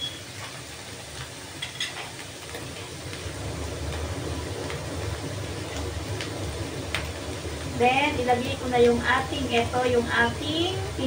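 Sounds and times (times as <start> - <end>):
vegetables sizzling in pan: 0.0 - 11.0
low rumble: 3.0 - 11.0.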